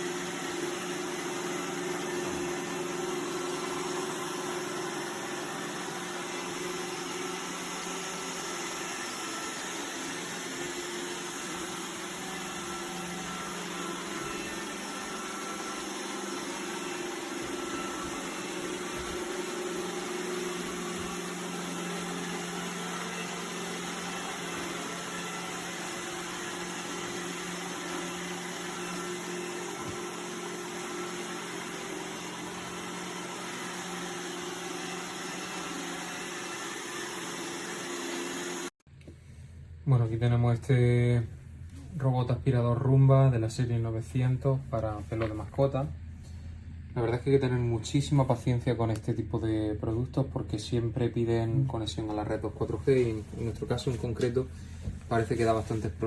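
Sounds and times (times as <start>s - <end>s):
robot vacuum cleaner humming: 0.0s - 38.7s.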